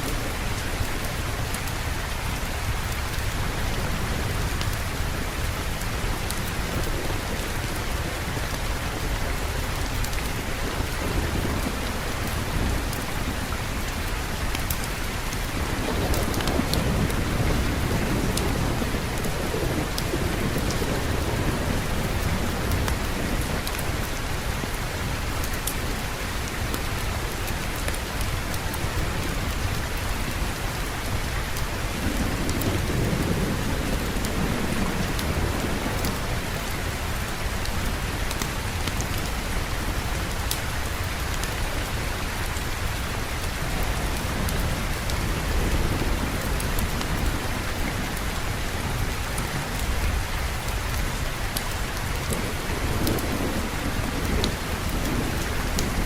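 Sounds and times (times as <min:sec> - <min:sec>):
heavy rain: 0:00.0 - 0:56.0
rolling thunder: 0:15.4 - 0:24.0.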